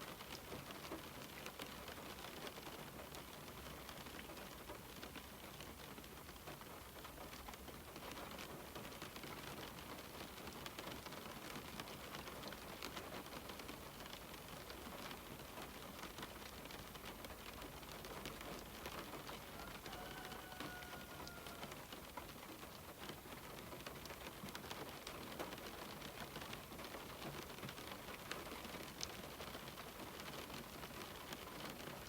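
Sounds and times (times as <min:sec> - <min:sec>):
rain on window glass: 0:00.0 - 0:32.0.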